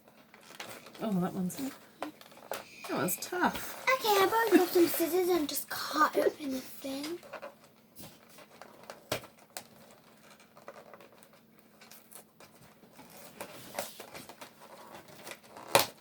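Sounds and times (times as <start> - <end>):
rustling: 0.0 - 16.0
cardboard clicks and scratching: 7.1 - 16.0.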